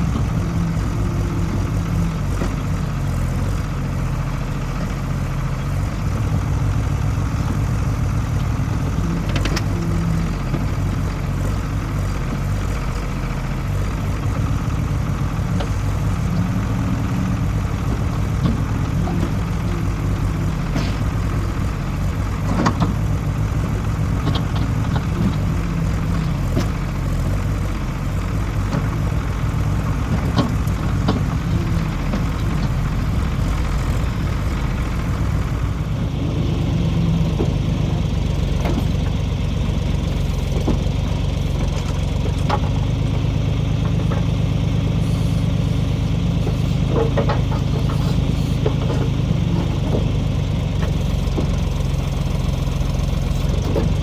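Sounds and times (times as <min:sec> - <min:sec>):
diesel engine running: 0:00.0 - 0:54.0
sharp clanks and knocks: 0:14.3 - 0:27.7, 0:46.4 - 0:51.9.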